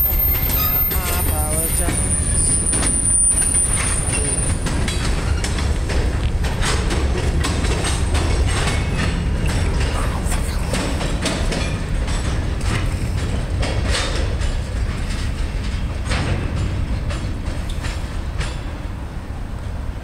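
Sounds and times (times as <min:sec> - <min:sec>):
high wheel squeal: 0:00.0 - 0:05.6
wheels clicking and clanking: 0:00.0 - 0:19.8
steel wheels rumbling on rail: 0:00.0 - 0:20.0.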